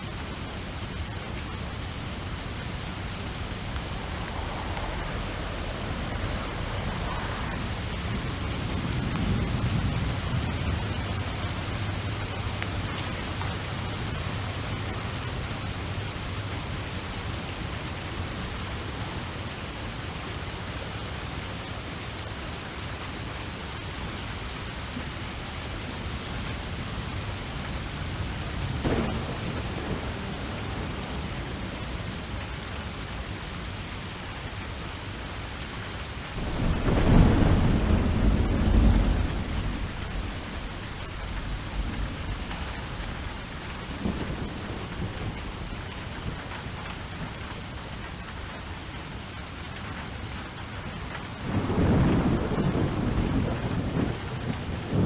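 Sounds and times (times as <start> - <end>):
low thunder rumble: 0.0 - 19.8, 24.9 - 34.3, 36.3 - 48.5, 51.4 - 55.0
steady rain: 0.0 - 55.0
thunder crack: 1.6 - 15.7, 28.4 - 33.3, 36.4 - 46.0, 51.5 - 55.0.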